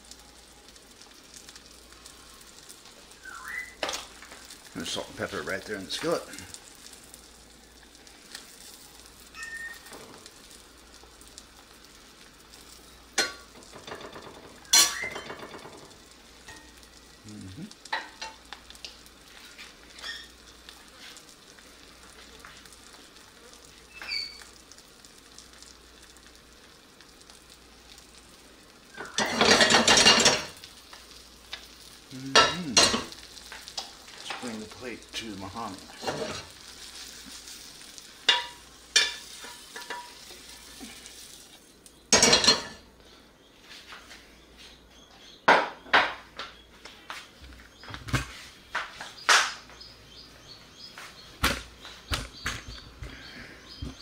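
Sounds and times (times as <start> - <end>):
eggs sizzling in a pan: 0.0 - 54.0
utensil clattering against pan: 29.0 - 30.6.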